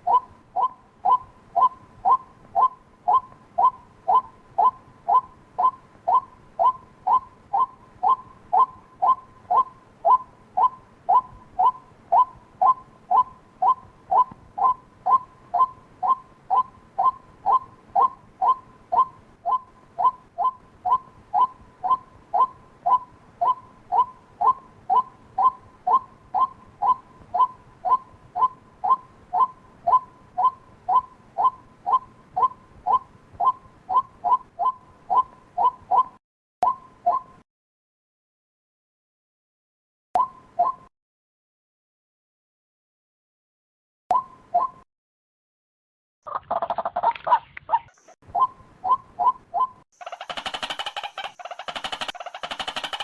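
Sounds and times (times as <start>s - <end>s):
waterhen calling: 0.0s - 36.2s, 46.3s - 53.0s.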